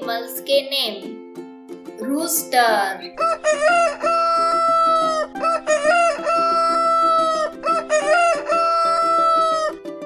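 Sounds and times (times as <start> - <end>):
rooster crowing: 3.2 - 9.8.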